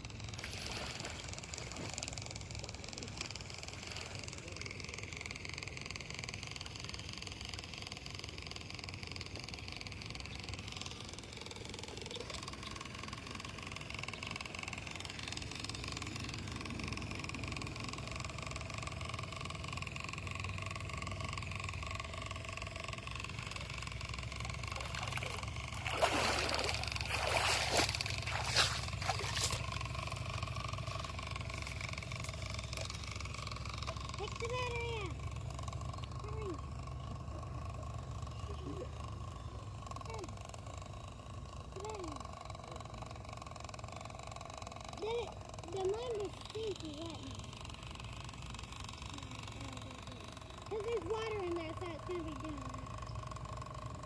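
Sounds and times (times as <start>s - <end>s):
small electric motor whining: 0.0s - 54.0s
water splashing and trickling: 0.4s - 1.9s, 24.6s - 29.7s.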